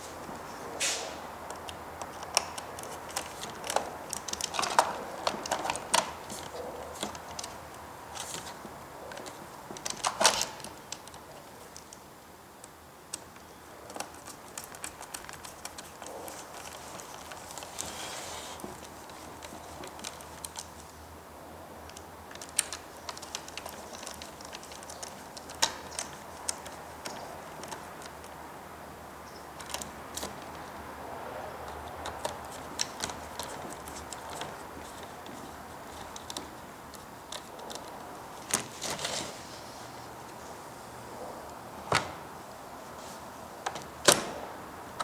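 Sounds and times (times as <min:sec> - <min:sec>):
steady low hiss: 0:00.0 - 0:45.0
plastic parts clicking: 0:01.5 - 0:12.0, 0:21.8 - 0:28.4.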